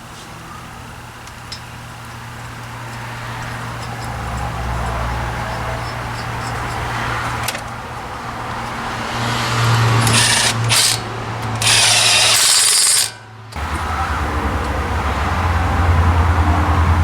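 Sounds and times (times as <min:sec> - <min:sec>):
low shop hum: 0:00.0 - 0:17.0
power tool running: 0:09.0 - 0:15.7.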